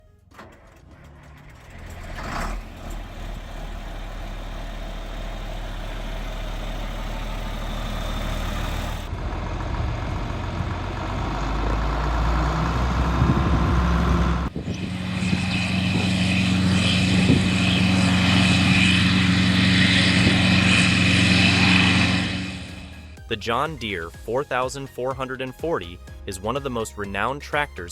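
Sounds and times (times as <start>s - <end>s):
diesel tractor engine running: 0.0s - 27.9s.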